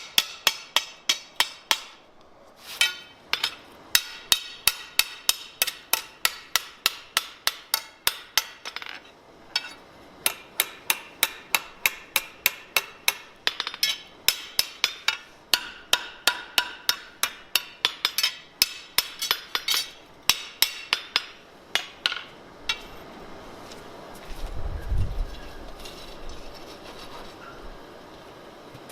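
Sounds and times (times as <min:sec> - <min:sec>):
hammer striking steel on anvil: 0:00.0 - 0:02.0, 0:02.8 - 0:09.0, 0:09.6 - 0:22.9.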